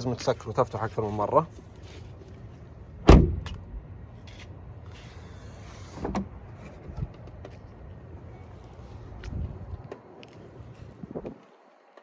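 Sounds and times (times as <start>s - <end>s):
car door shutting: 3.0s - 3.6s, 5.9s - 6.3s.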